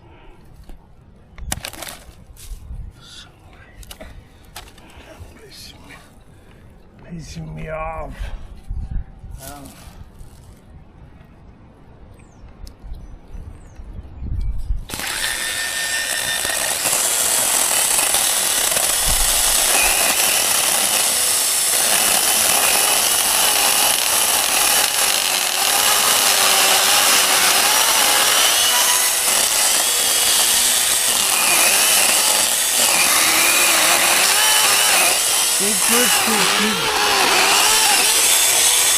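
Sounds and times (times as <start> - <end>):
chainsaw cutting brush: 14.9 - 38.9.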